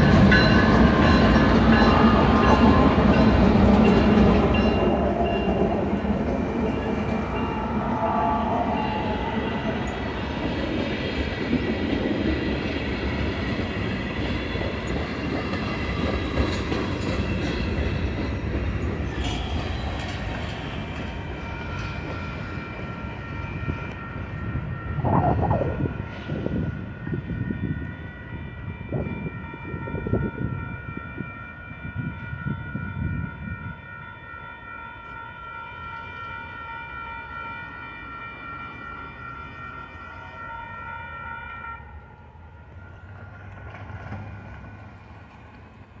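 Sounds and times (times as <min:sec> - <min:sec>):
railroad crossing bell ringing: 0:00.0 - 0:10.9, 0:15.8 - 0:25.0, 0:26.4 - 0:43.6
train wheels clattering and rumbling: 0:10.1 - 0:22.9.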